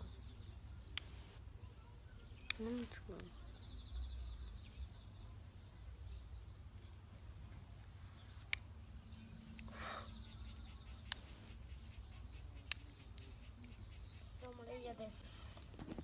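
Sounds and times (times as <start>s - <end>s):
faint high chirping: 0.0s - 16.0s
sharp pops: 1.0s - 1.4s, 11.0s - 11.6s.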